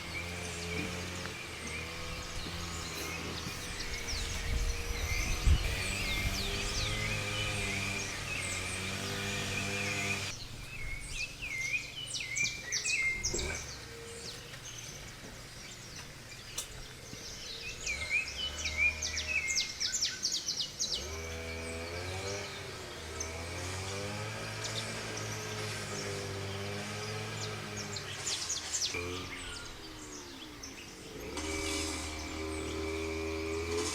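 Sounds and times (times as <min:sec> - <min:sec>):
low wavering hum: 0:00.0 - 0:15.0
forest birds singing: 0:00.0 - 0:33.9.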